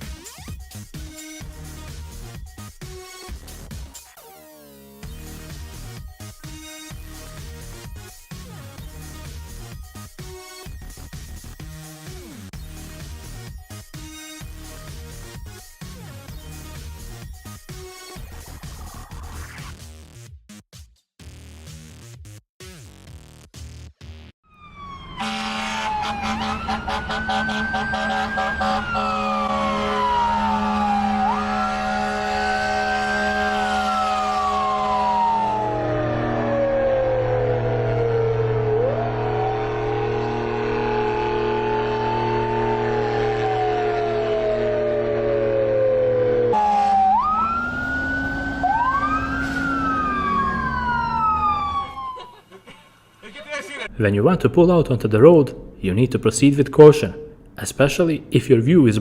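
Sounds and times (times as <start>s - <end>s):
emergency vehicle siren wailing: 24.4s - 52.6s
traffic noise: 24.5s - 33.7s, 46.2s - 59.0s.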